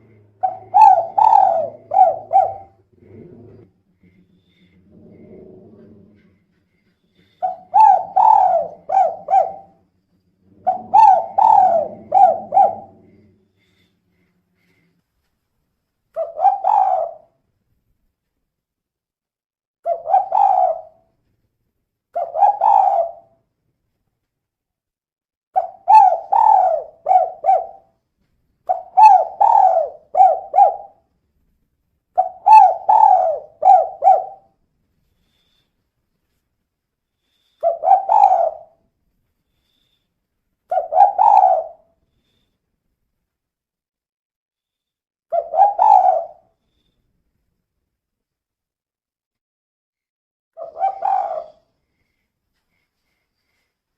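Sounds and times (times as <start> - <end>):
dove cooing: 0.0 - 3.6, 4.8 - 6.4, 7.3 - 9.8, 10.5 - 13.9, 16.2 - 17.3, 19.9 - 21.0, 22.2 - 23.4, 25.6 - 27.9, 28.7 - 31.0, 32.2 - 34.6, 37.6 - 38.8, 40.7 - 41.9, 45.3 - 46.5, 50.6 - 51.7.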